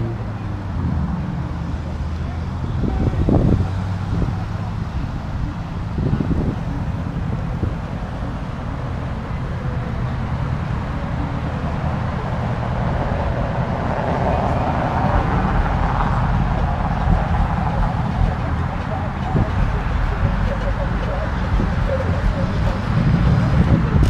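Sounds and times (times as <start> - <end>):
car engine rumbling: 0.0 - 24.0.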